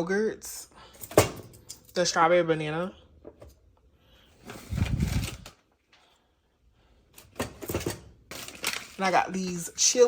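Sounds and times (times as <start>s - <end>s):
grocery items clattering: 7.2s - 10.0s
packaging rustling: 8.2s - 10.0s.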